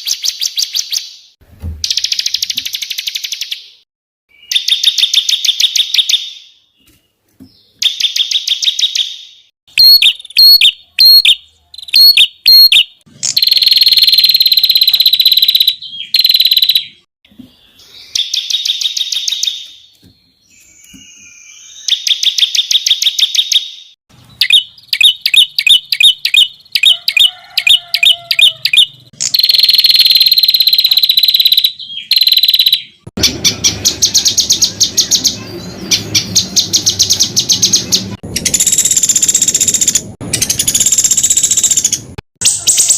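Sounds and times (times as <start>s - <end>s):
songbird trills and rattles: 18.1s - 23.7s, 24.4s - 42.9s.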